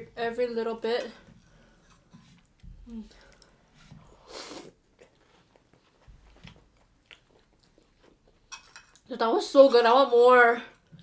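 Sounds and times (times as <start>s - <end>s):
chewing and mouth noises: 4.6s - 9.0s.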